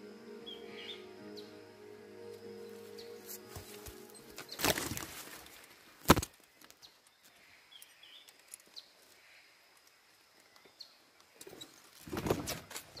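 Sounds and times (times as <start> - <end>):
bird chirps: 0.0 - 5.6, 6.8 - 9.5.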